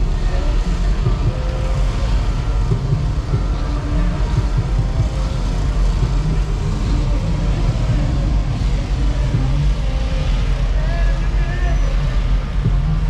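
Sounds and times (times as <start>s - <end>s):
car engines rumbling: 0.0s - 13.0s.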